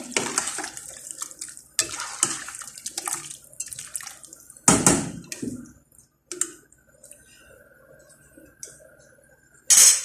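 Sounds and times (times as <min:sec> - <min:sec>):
water running and splashing: 0:00.0 - 0:04.6.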